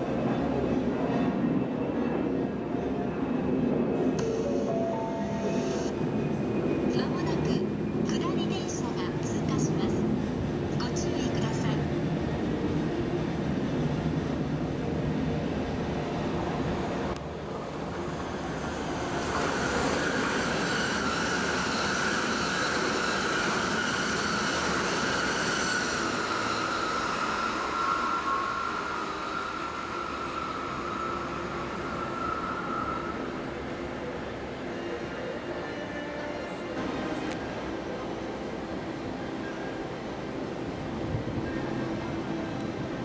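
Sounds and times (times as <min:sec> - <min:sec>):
train rail noise: 0:00.0 - 0:43.0
high-pitched rail squeal: 0:03.9 - 0:06.9, 0:17.9 - 0:36.7.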